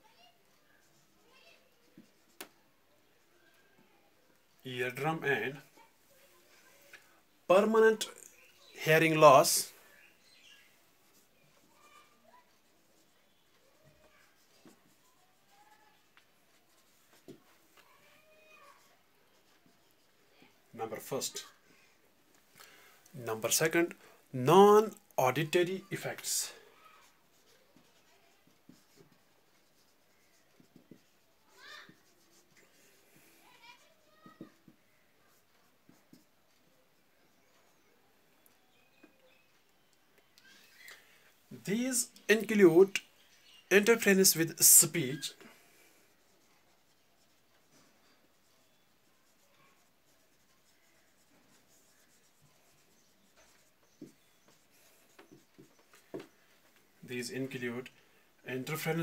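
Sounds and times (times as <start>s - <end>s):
pen scratching while writing: 27.4s - 31.2s, 31.8s - 32.7s, 46.4s - 56.3s.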